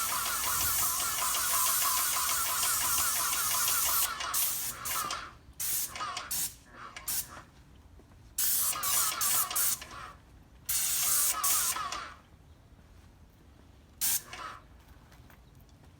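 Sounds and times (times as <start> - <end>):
spray paint hissing: 0.0 - 7.3, 8.4 - 9.8, 10.7 - 12.0, 14.0 - 14.3.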